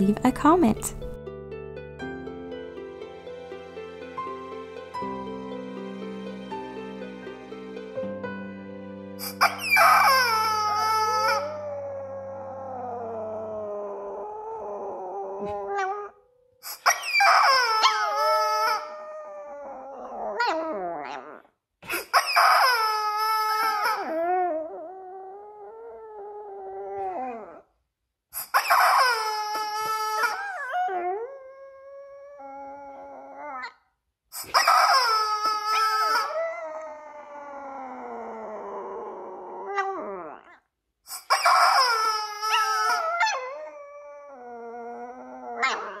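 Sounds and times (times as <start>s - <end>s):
small dog howling: 9.2s - 16.2s, 16.8s - 21.4s, 22.1s - 27.6s, 28.5s - 33.7s, 34.5s - 40.6s, 41.2s - 46.0s.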